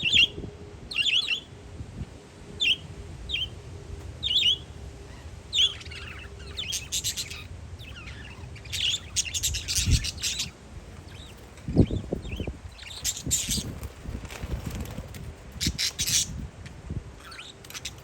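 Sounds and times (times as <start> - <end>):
parakeets chirping: 0.0 - 1.5, 2.6 - 3.6, 4.2 - 18.0
wind rumble on microphone: 0.0 - 18.0
low thumps of gusts: 9.6 - 17.2.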